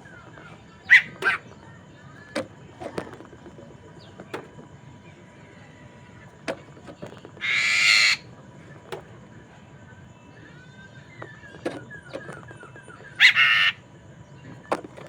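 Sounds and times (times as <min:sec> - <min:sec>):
bird sharp chips: 0:00.4 - 0:01.6, 0:07.4 - 0:08.2, 0:11.3 - 0:13.8
harsh rasping bird call: 0:00.8 - 0:01.5, 0:07.4 - 0:08.3, 0:13.1 - 0:13.8.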